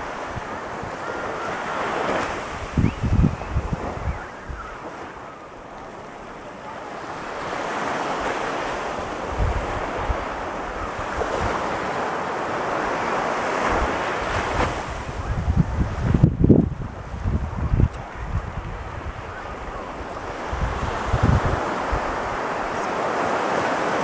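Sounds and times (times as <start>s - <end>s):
wind buffeting microphone: 0.0s - 23.9s
surf breaking on beach: 0.0s - 24.0s.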